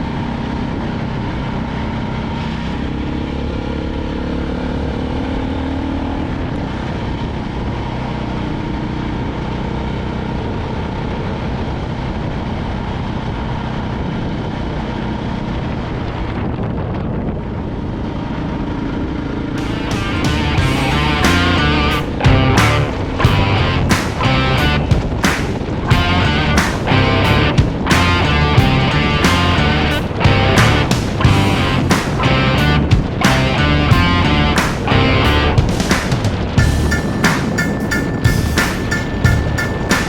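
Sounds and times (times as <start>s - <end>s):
motorcycle engine: 18.6s - 40.0s
rush of noise: 19.6s - 40.0s.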